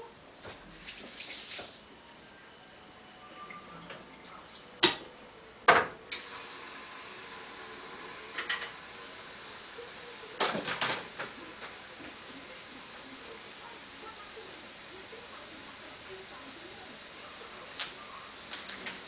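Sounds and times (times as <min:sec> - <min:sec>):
dishes and utensils clattering: 0:08.3 - 0:08.8, 0:10.4 - 0:11.8.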